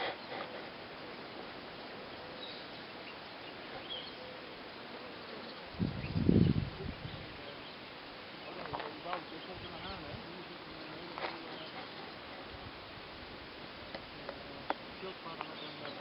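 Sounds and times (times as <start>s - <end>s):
faint high bird chirps: 1.2s - 7.8s.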